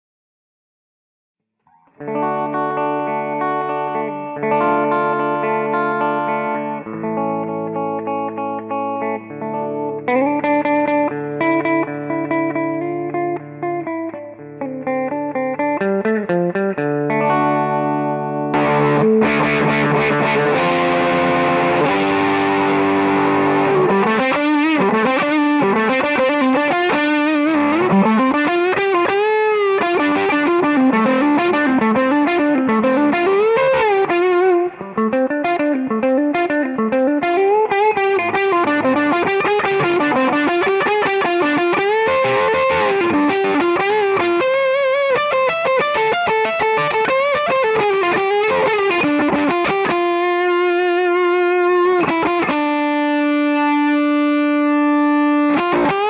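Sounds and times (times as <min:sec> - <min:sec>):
fuzzed electric guitar: 0:01.7 - 0:56.0.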